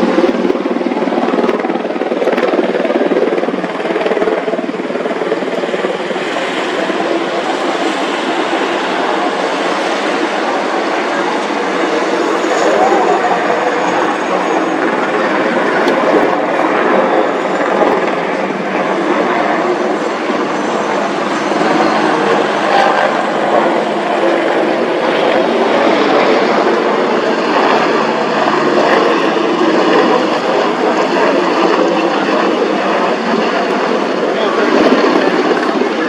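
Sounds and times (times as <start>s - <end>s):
helicopter flying: 0.0s - 36.0s.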